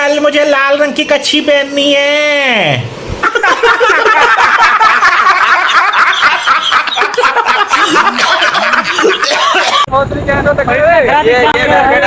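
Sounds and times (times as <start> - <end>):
high voices laughing and giggling: 3.2 - 9.9.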